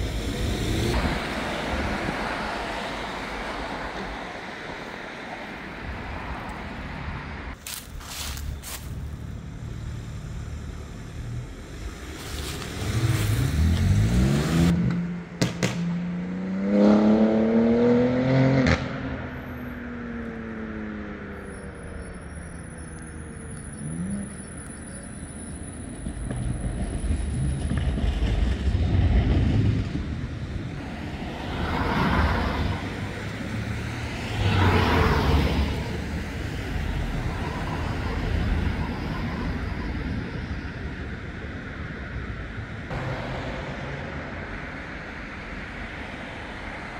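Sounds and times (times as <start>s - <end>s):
vehicles passing: 0.0s - 46.9s
vehicle engine accelerating: 8.1s - 19.7s.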